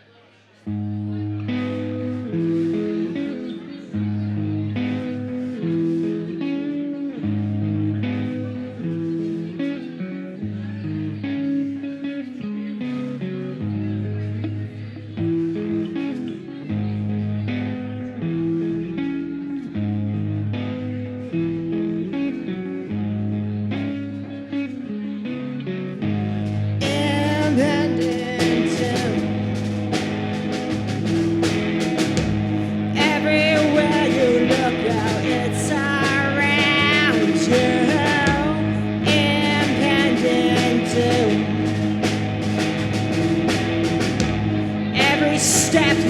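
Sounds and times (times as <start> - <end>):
electric guitar: 0.0 - 46.0
drums: 0.7 - 9.9, 26.0 - 46.0
rock band playing: 0.8 - 10.0, 25.9 - 46.0.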